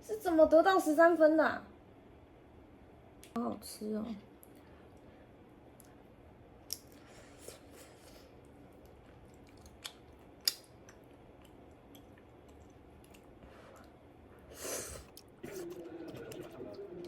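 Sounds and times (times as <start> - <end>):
person chewing: 6.6 - 16.5.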